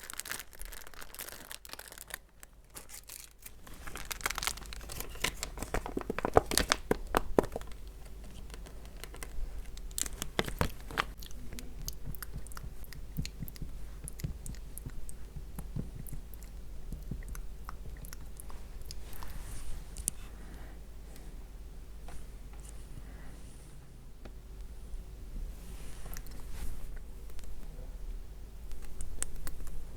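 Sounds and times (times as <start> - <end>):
crackling and clicking: 0.1 - 19.4, 28.6 - 29.9.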